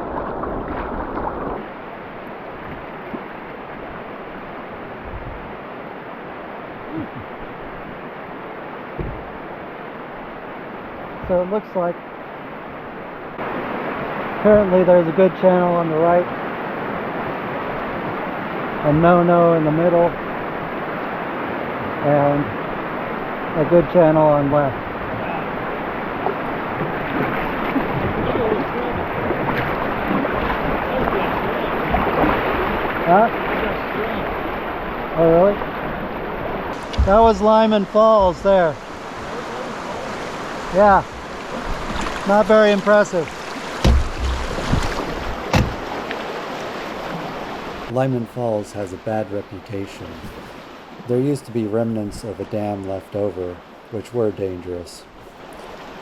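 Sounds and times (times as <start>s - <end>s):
river water through rapids: 0.0s - 56.0s
soft low bumps: 8.9s - 9.4s, 36.8s - 39.8s, 43.6s - 46.2s
small splashes: 25.4s - 47.9s.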